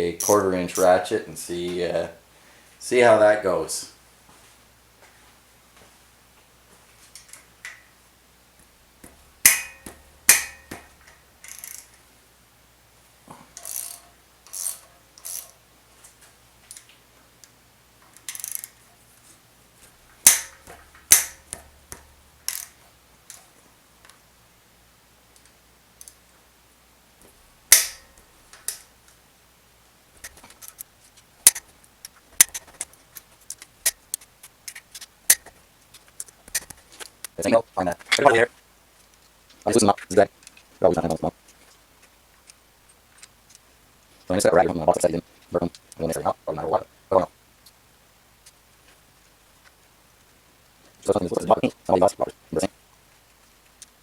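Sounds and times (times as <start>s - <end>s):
metallic knocks and strikes: 9.0s - 11.8s, 20.2s - 22.7s, 27.7s - 28.8s
ratchet clicking: 11.4s - 12.0s, 13.6s - 15.6s, 18.2s - 18.8s, 20.2s - 22.8s.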